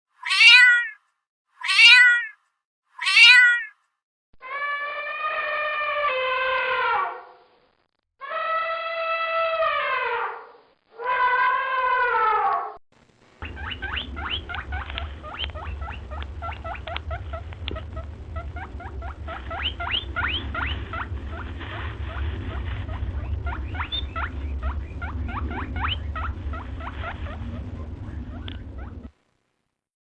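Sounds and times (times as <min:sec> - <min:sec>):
small animal squeaking: 0:00.2 - 0:01.0, 0:01.6 - 0:02.4, 0:03.0 - 0:03.7, 0:13.4 - 0:29.1
steady low rumble: 0:13.0 - 0:29.3.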